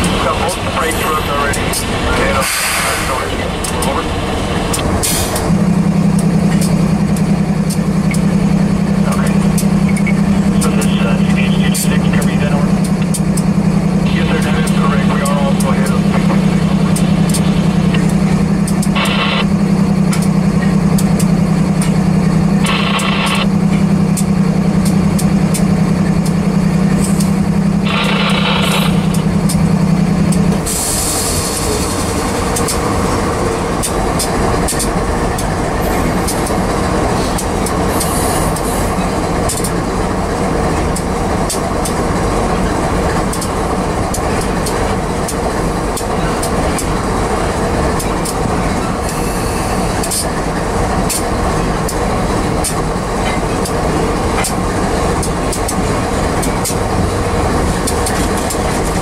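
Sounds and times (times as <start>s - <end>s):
steel wheels rumbling on rail: 0.0s - 59.0s
sharp clicks: 14.4s - 22.0s, 22.6s - 23.5s, 27.0s - 30.6s, 31.5s - 48.5s, 51.0s - 52.0s.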